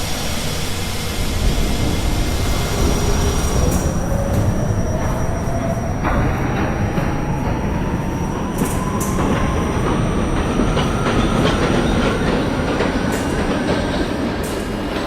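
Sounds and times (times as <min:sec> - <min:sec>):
subway train wheels rumbling: 0:00.0 - 0:15.0
clacks over rail joints: 0:03.6 - 0:15.0.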